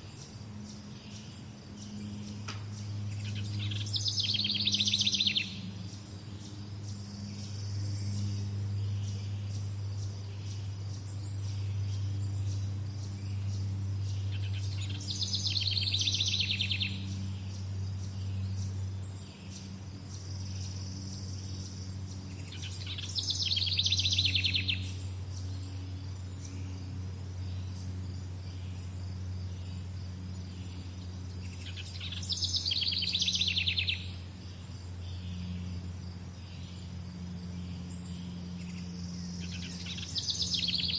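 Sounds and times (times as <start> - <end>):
insects chirping: 0.0 - 40.9
low hum: 0.0 - 40.9
songbird trilling: 0.0 - 40.9.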